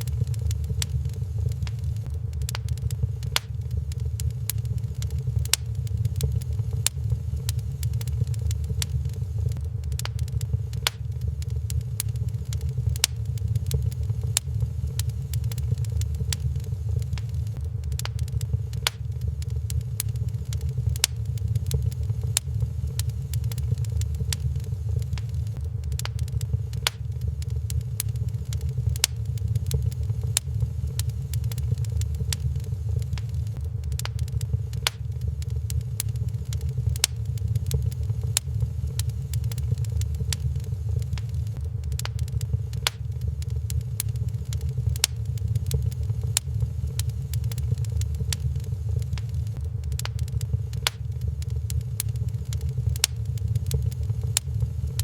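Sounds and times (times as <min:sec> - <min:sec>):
low fire rumble: 0:00.0 - 0:55.0
wood fire crackling and popping: 0:00.0 - 0:55.0.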